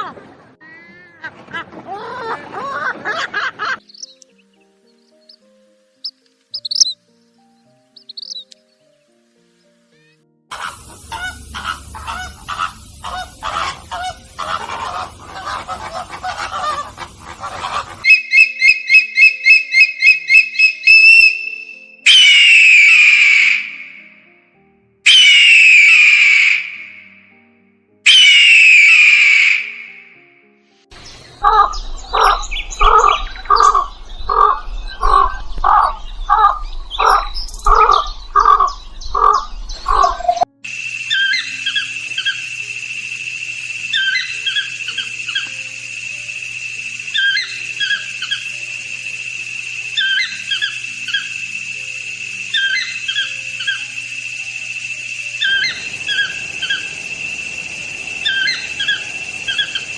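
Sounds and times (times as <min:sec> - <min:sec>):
harsh honk-like bird calls: 0:10.5 - 0:24.1, 0:25.1 - 0:27.1, 0:28.1 - 0:30.1
high whistled bird notes: 0:10.5 - 0:24.2, 0:25.0 - 0:27.1, 0:28.0 - 0:30.2, 0:31.0 - 0:59.9.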